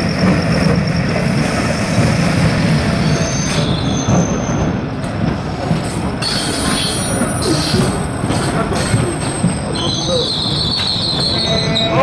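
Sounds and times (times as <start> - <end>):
train wheels rumbling on rail: 0.0 - 12.0
high wheel squeals: 9.4 - 12.0.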